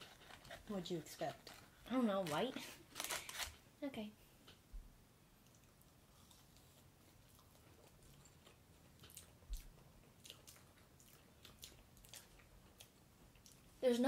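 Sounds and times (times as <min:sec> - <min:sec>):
people chewing marshmallows: 0:05.4 - 0:13.8.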